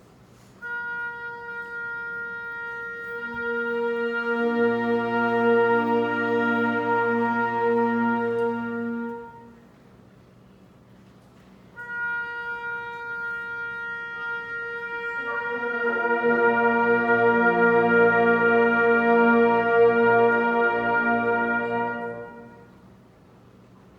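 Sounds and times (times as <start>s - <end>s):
wind band held chord: 1.7s - 9.8s, 12.4s - 22.8s
single sustained note: 14.4s - 22.8s.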